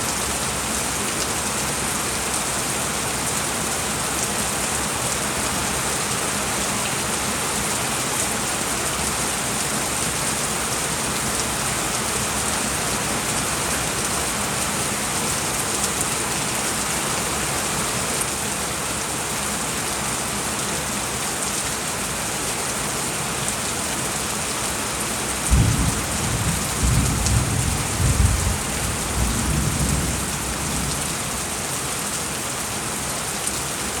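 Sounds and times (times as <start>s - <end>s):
steady rain hissing: 0.0s - 34.0s
thunder rumbling: 25.5s - 31.4s.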